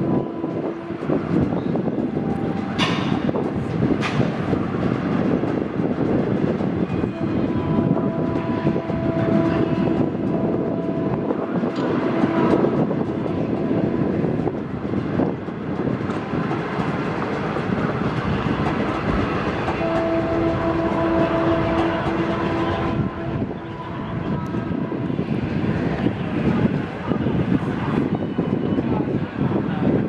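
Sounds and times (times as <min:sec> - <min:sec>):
train rumbling past: 0:00.0 - 0:30.0
wheels clacking over rail joints: 0:00.8 - 0:11.0, 0:11.6 - 0:23.7.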